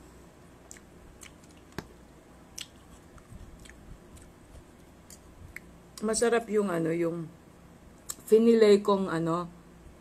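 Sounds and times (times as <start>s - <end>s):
person quietly chewing: 0.6s - 1.9s, 2.5s - 5.7s
mouth clicks and smacks: 0.6s - 6.0s.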